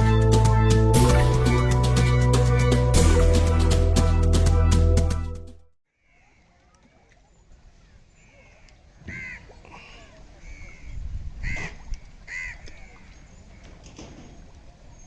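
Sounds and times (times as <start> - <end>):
crow cawing: 8.4 - 9.5, 11.4 - 12.8.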